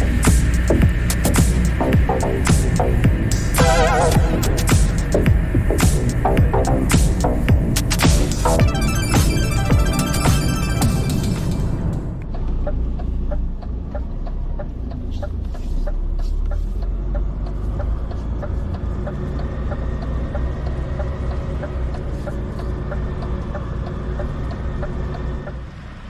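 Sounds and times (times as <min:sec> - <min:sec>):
truck diesel engine rumbling: 0:00.0 - 0:08.8, 0:09.5 - 0:26.0
low hum: 0:00.0 - 0:12.5.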